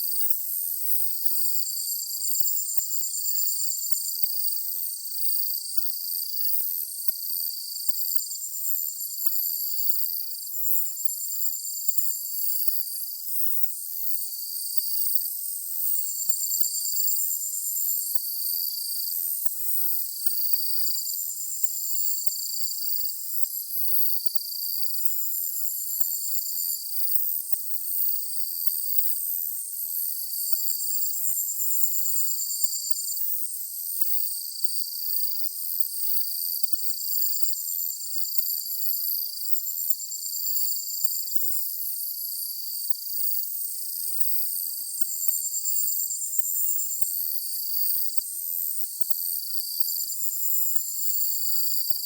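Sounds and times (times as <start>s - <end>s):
shrill insect hum: 30.1s - 52.0s.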